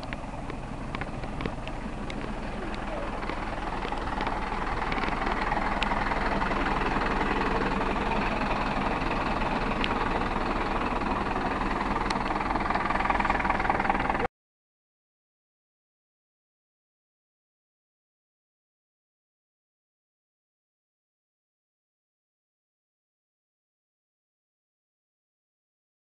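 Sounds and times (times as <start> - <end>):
faint clicks: 0.0 - 6.0, 9.8 - 10.0
vehicle engine running: 0.0 - 14.3.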